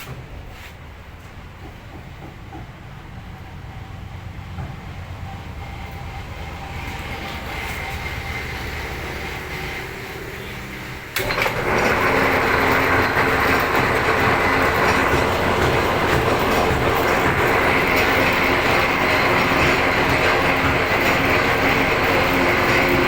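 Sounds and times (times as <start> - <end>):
metal lathe running: 5.6 - 23.0
harsh cutting noise of tool on steel: 11.1 - 23.0.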